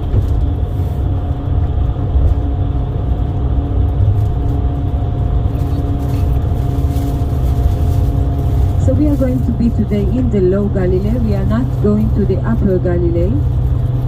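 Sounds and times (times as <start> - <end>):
faint steady whine: 0.0 - 14.0
vehicle engine and road rumble: 0.0 - 14.0.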